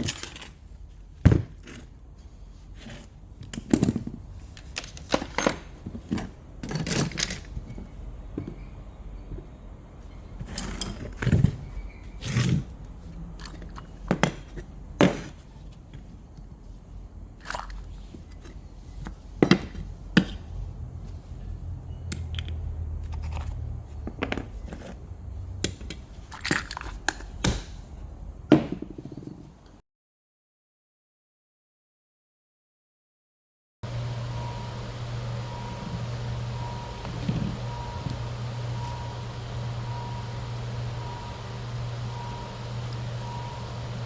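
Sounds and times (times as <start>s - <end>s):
metal parts and tools clinking: 0.0s - 0.8s, 2.9s - 7.8s, 10.4s - 14.7s, 25.6s - 27.3s
low hum: 33.8s - 44.0s.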